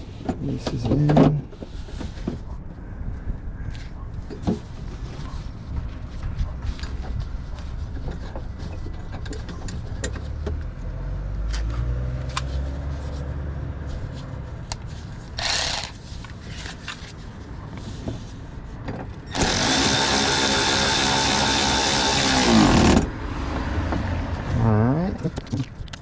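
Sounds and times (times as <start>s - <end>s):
loud steady mechanical noise: 14.7s - 18.3s, 18.9s - 23.2s.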